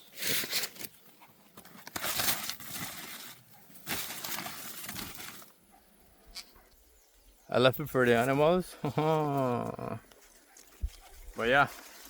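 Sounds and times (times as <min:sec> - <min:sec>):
dry corn leaves rustling: 0:00.0 - 0:05.6, 0:09.4 - 0:12.0.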